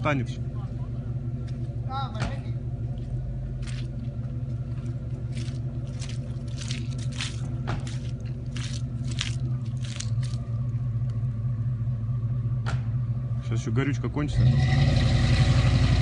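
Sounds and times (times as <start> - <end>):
engine running at low revs: 0.0 - 16.0
sharp scuffs and clicks: 3.6 - 4.1, 4.7 - 10.5.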